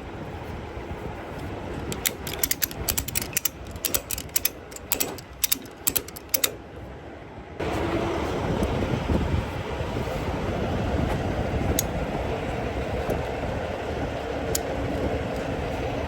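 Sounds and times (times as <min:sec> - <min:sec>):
ratchet pawl clicking: 0:01.8 - 0:06.6.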